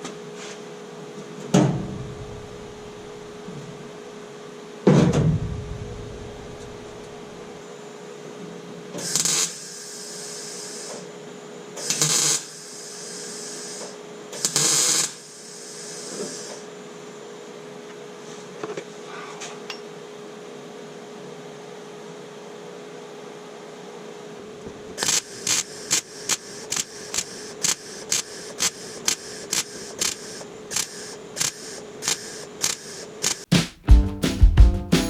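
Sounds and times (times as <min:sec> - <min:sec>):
power tool running: 0:09.0 - 0:11.0, 0:11.8 - 0:16.6, 0:25.0 - 0:33.5.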